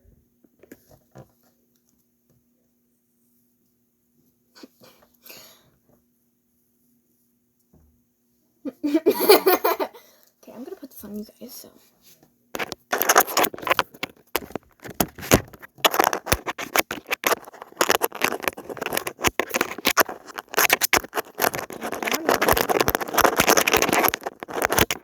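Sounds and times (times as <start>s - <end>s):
handling noise scraping and rustling: 12.0s - 25.0s.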